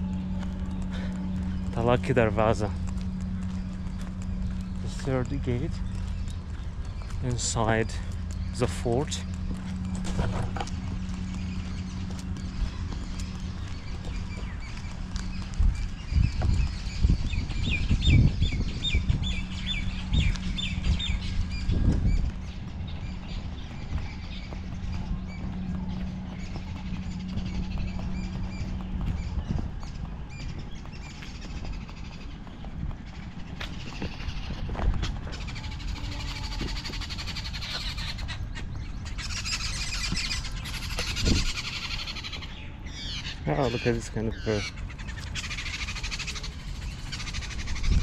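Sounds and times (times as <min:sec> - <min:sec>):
bird chirping: 0:00.0 - 0:48.0
steady low hum: 0:00.0 - 0:48.0.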